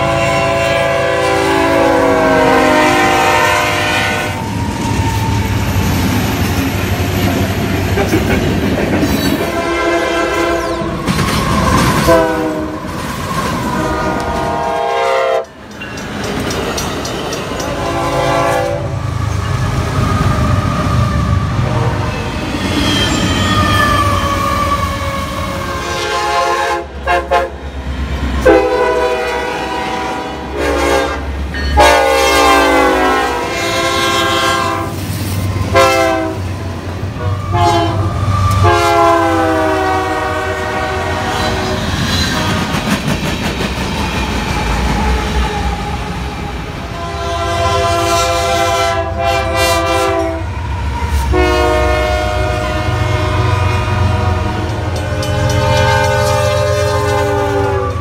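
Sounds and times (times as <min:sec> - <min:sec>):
locomotive air horn: 0:00.0 - 0:04.6, 0:09.4 - 0:11.0, 0:11.6 - 0:13.0, 0:13.7 - 0:15.6, 0:17.6 - 0:19.1, 0:21.6 - 0:22.3, 0:23.2 - 0:27.7, 0:28.4 - 0:35.0, 0:35.6 - 0:42.8, 0:46.9 - 0:58.0
wheels clacking over rail joints: 0:10.9 - 0:14.6, 0:15.5 - 0:18.3, 0:54.4 - 0:58.0.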